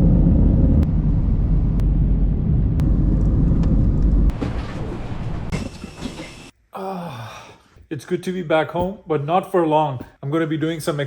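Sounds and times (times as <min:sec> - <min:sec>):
moving vehicle rumble: 0:00.0 - 0:06.5.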